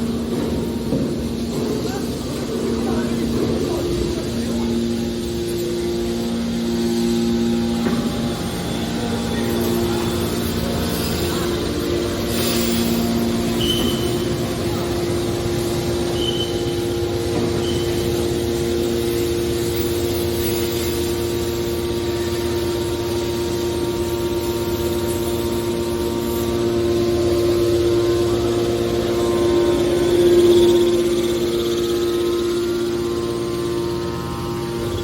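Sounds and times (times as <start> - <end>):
hydraulic baler motor hum: 0.0 - 35.0
high squeaks: 12.3 - 14.8, 15.8 - 18.4.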